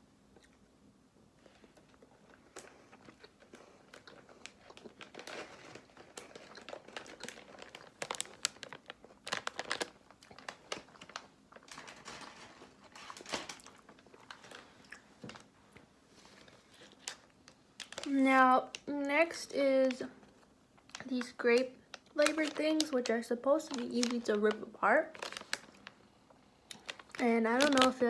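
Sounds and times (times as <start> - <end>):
plastic packaging crinkling: 1.5 - 15.5, 16.2 - 28.0.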